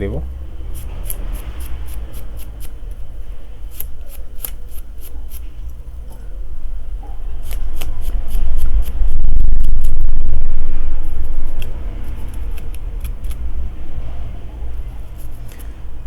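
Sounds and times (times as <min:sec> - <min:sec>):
low hum: 0:00.0 - 0:16.0
brush scrubbing circuit board: 0:00.6 - 0:02.8, 0:03.7 - 0:05.4, 0:07.4 - 0:09.2, 0:14.8 - 0:15.7.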